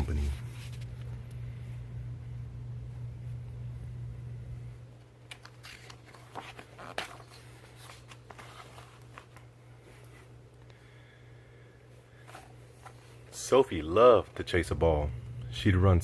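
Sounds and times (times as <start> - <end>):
steady low hum: 0.0 - 16.0
book pages clicking: 5.3 - 9.4
paper rustling: 5.3 - 10.1.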